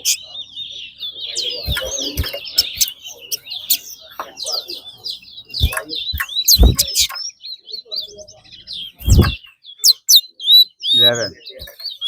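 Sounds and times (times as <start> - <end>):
songbirds chirping and whistling: 0.0 - 12.0
loud thumps: 5.6 - 7.1, 9.0 - 9.4.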